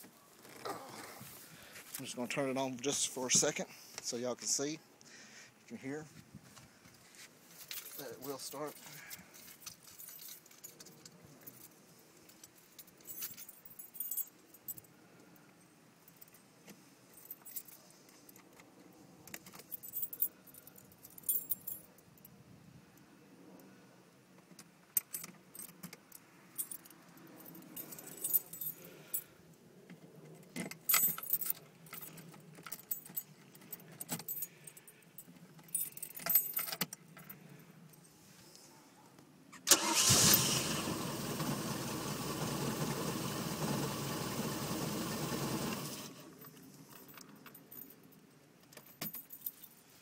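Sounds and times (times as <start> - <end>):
boat engine starting and running: 39.7 - 46.1.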